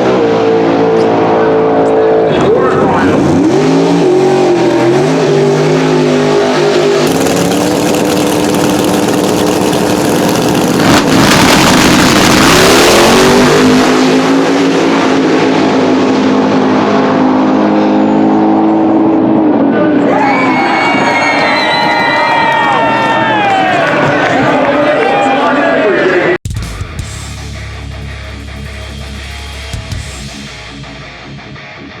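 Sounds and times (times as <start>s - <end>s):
drag car engine at full throttle: 0.0s - 20.5s, 27.0s - 32.0s.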